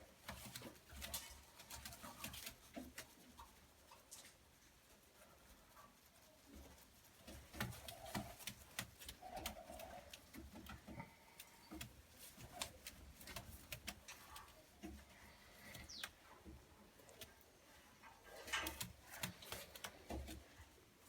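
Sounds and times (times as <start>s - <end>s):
light clicks and taps: 7.2s - 17.4s.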